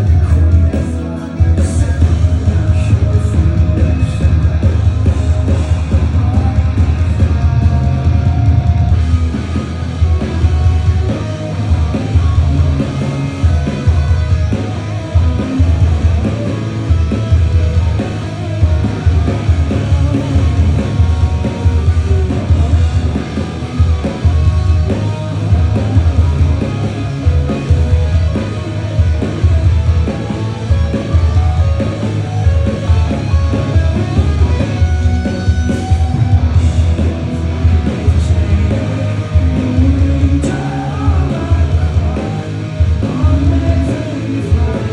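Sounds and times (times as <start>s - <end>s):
person singing: 0.0s - 8.6s, 37.7s - 44.9s
live rock band: 0.0s - 44.9s.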